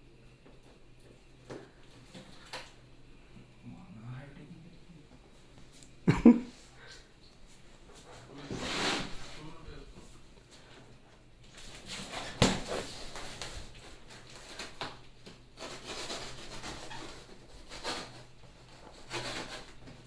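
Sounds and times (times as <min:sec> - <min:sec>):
rubbing and knocks: 0:11.7 - 0:20.0.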